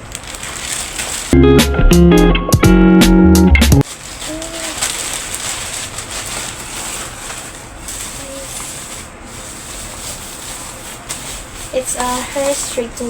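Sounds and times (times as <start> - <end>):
packaging crinkling and rustling: 0.0 - 1.4, 3.8 - 13.0
guitar background music: 1.4 - 3.8.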